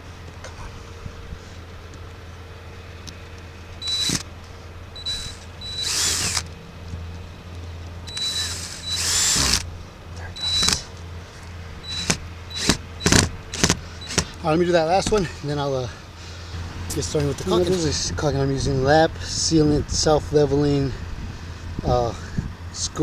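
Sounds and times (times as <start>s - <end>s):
power drill driving screws: 3.8s - 4.3s, 5.0s - 6.6s, 8.1s - 9.7s, 10.4s - 10.9s, 11.8s - 15.2s, 16.9s - 17.9s.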